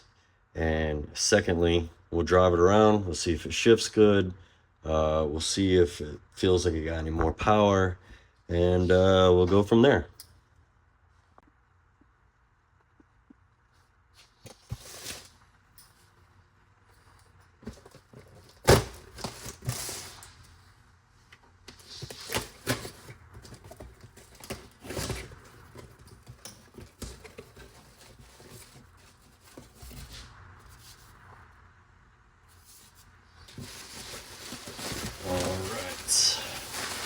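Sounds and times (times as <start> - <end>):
rustling: 13.6 - 31.5, 32.4 - 37.0.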